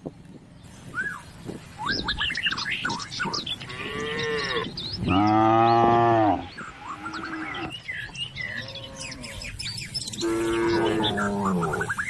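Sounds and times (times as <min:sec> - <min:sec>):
birds chirping: 0:00.0 - 0:12.0
cow mooing: 0:03.7 - 0:06.5, 0:10.2 - 0:12.0.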